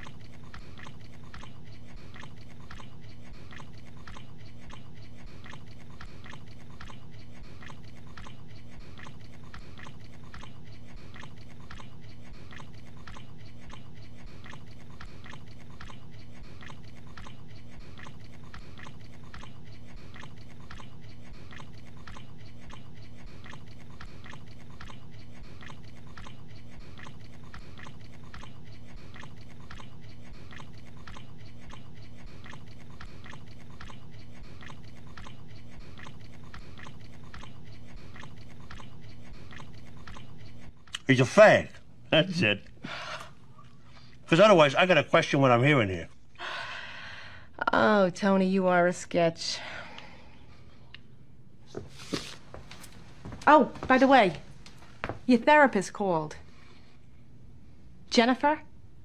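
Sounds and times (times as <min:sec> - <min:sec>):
man chewing with wet smacks: 0:00.0 - 0:41.1, 0:42.6 - 0:44.3.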